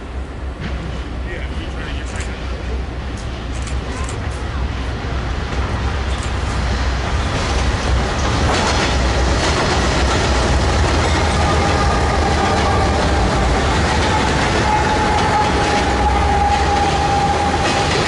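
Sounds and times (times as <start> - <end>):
diesel locomotive engine rumble: 0.0 - 18.0
wheels clacking over rails: 5.5 - 18.0.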